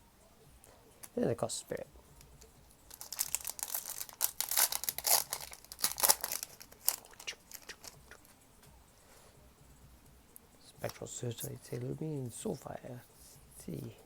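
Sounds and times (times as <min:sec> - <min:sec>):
foil wrapper tearing and crinkling: 0:02.9 - 0:08.0.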